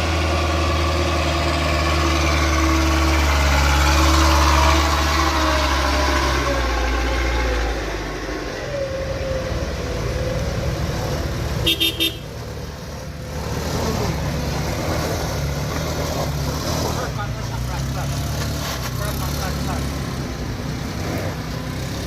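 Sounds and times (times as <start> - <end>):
engine running low: 0.0 - 22.0
vehicle horn toots: 11.6 - 12.4.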